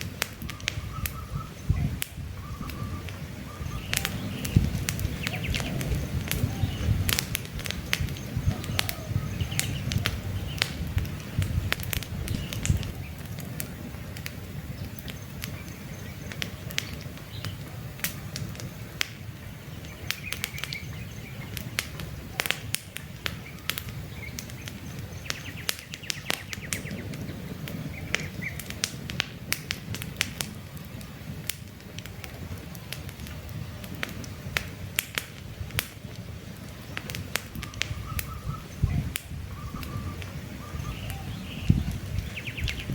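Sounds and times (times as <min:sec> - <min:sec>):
campfire crackling and popping: 0:00.0 - 0:42.9
rush of flames: 0:00.0 - 0:42.9
faint bird chirps: 0:00.5 - 0:04.6, 0:36.8 - 0:42.9.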